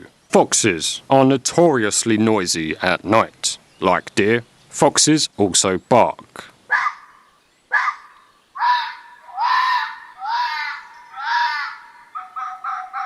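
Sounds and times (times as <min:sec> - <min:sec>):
fox barking: 0:06.7 - 0:13.0.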